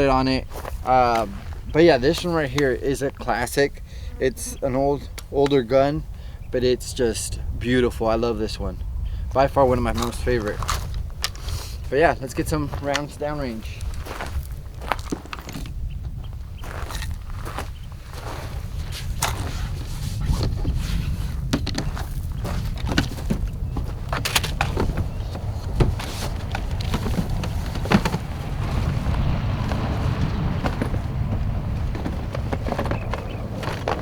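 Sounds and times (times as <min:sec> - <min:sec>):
wind buffeting microphone: 0:00.0 - 0:34.0
footsteps and handling clicks: 0:09.9 - 0:15.8, 0:18.4 - 0:28.3, 0:31.9 - 0:34.0.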